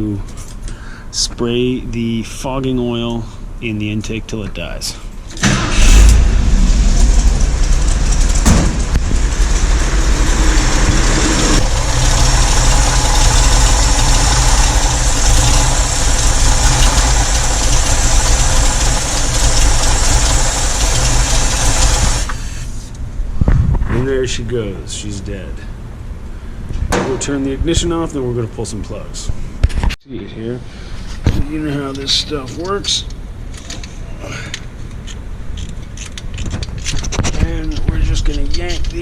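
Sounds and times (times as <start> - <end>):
engine stalling: 5.3 - 22.8
engine running loudly: 5.4 - 22.4.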